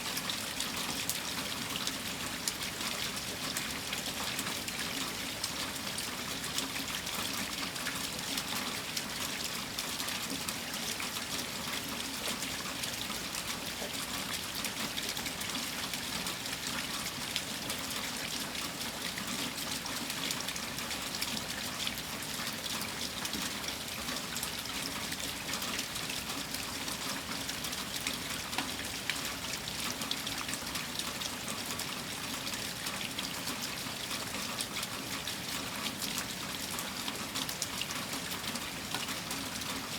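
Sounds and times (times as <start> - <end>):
rain pattering: 0.0 - 39.9
trickling water: 0.0 - 39.9.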